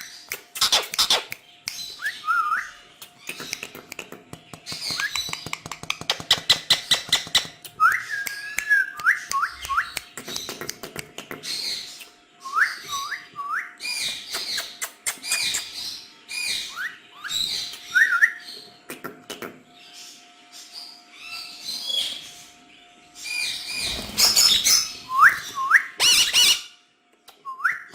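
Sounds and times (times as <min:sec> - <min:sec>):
parrots chattering calls: 0:00.5 - 0:01.4, 0:23.3 - 0:25.2, 0:26.0 - 0:26.7
parrot harsh squawks: 0:26.0 - 0:26.7.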